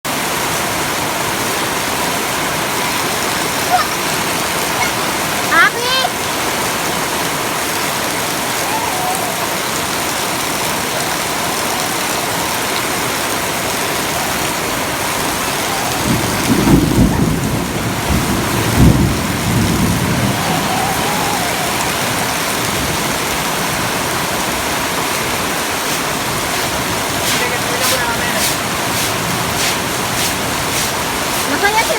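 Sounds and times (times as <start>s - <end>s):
heavy rain: 0.0s - 31.9s
thunder rumble: 13.4s - 31.9s.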